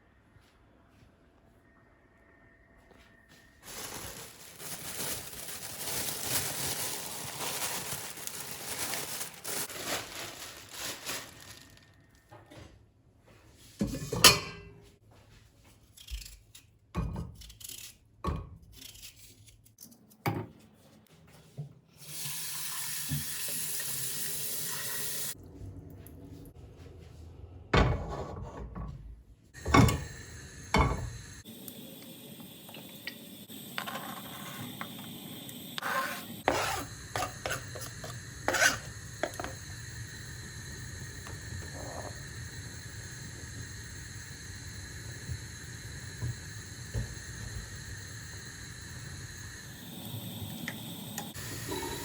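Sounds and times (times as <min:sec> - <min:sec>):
dishes and utensils clinking: 0:13.8 - 0:14.9.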